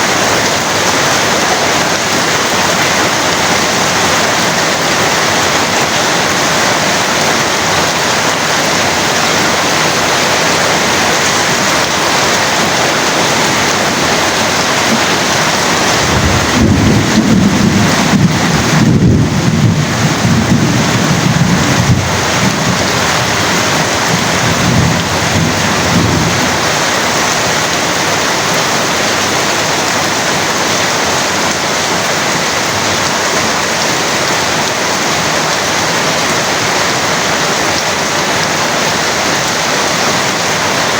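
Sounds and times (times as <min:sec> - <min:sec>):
heavy rain pouring: 0:00.0 - 0:40.9
low rolling thunder: 0:13.7 - 0:26.8.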